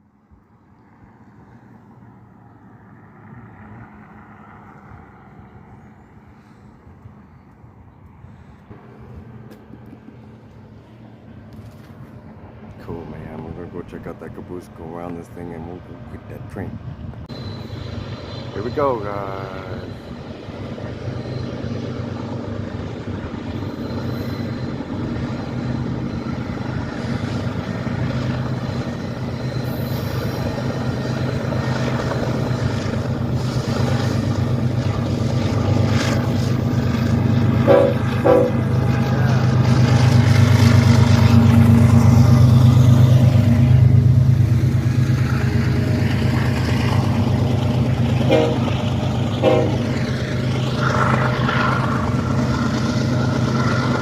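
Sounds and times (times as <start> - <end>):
diesel locomotives rumbling: 0.0 - 54.0
train horn blips: 37.6 - 39.2, 48.1 - 50.1.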